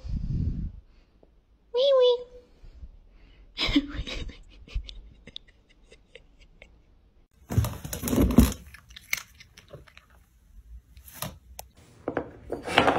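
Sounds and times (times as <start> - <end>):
cardboard crunching and scraping: 7.4 - 8.7.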